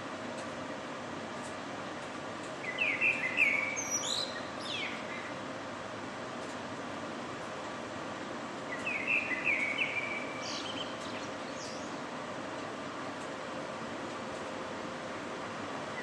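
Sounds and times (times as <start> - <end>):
city background hum: 0.0 - 16.0
bird chirping: 2.6 - 5.4, 8.7 - 12.1.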